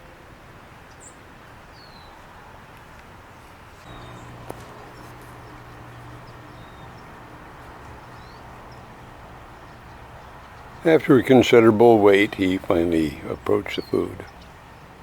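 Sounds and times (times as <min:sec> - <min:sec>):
steady low hum: 0:03.8 - 0:15.0
faint bird chirps: 0:03.9 - 0:10.9.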